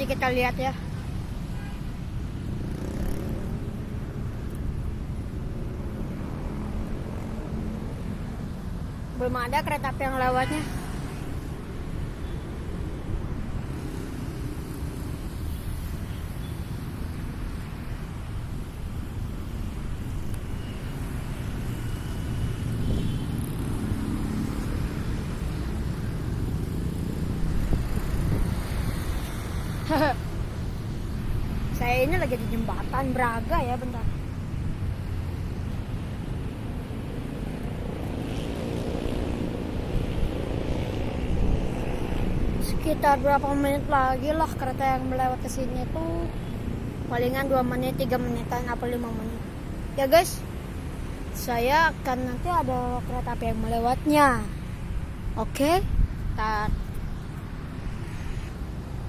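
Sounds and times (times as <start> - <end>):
low rumble of street traffic: 0.0 - 59.0.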